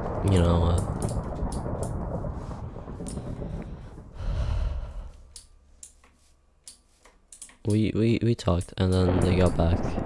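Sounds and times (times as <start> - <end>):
breath blowing on microphone: 2.3 - 5.3
person breathing heavily: 3.2 - 5.4.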